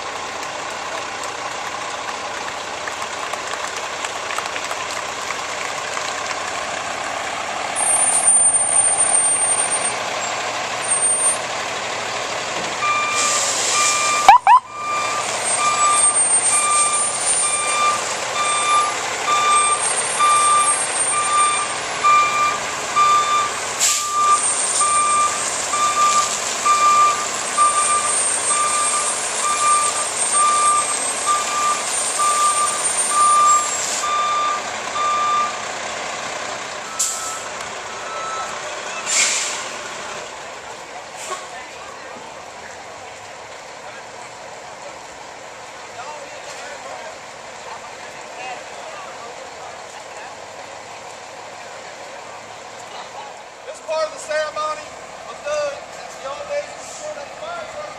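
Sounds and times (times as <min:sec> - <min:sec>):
reversing alarm beeping: 0:12.8 - 0:35.6, 0:36.9 - 0:38.5.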